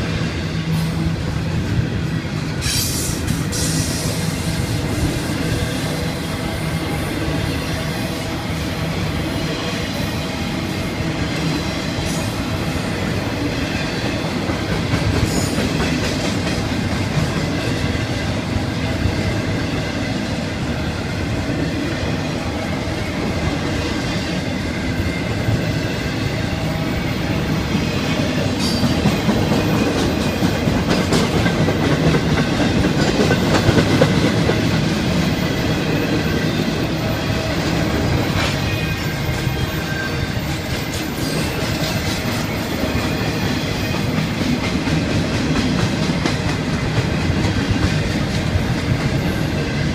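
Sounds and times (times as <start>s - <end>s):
freight train wheels clattering: 0.0s - 49.9s.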